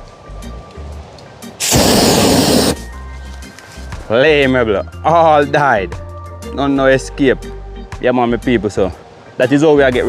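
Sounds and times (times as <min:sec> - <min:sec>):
background music: 0:00.0 - 0:10.0
aerosol flame whoosh: 0:01.6 - 0:02.9.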